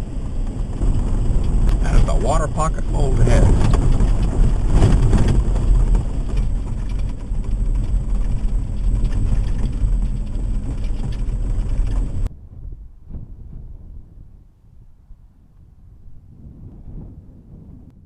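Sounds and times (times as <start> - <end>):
vehicle road and engine noise: 0.0 - 13.3.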